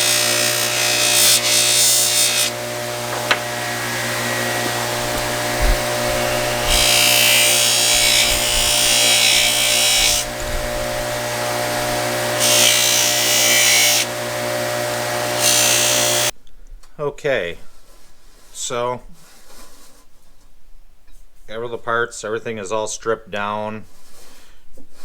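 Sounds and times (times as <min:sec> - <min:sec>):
metal rasping against wheel: 0:00.0 - 0:14.6
electric polishing wheel running: 0:00.0 - 0:16.3.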